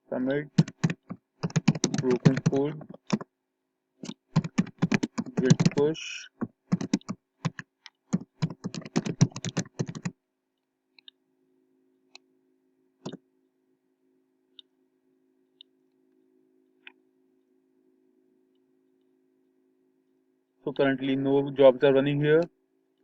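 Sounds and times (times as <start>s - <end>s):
faint steady hum: 0.0s - 23.0s
typing on computer keyboard: 0.5s - 3.3s, 4.0s - 10.2s.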